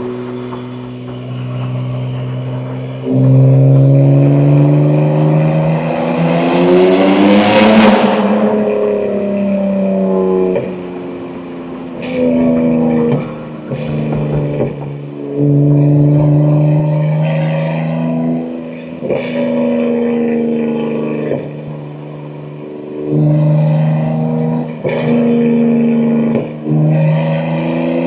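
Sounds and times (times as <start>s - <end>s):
turbo rushing noise: 0.0s - 16.8s
car engine revving under throttle: 0.0s - 28.0s.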